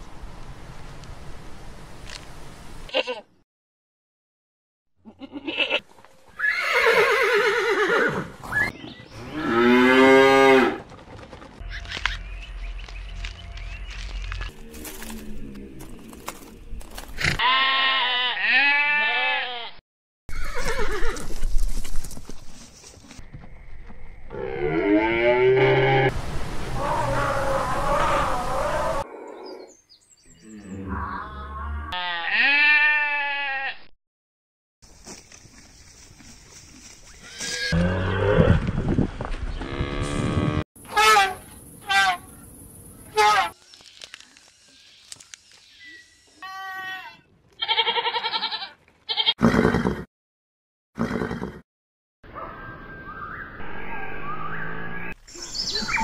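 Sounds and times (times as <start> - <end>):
goat bleating: 5.0 - 5.8, 17.4 - 21.2, 31.9 - 33.9, 46.4 - 49.4
livestock crying: 5.1 - 5.8, 17.4 - 21.2, 30.6 - 33.9, 46.4 - 49.4.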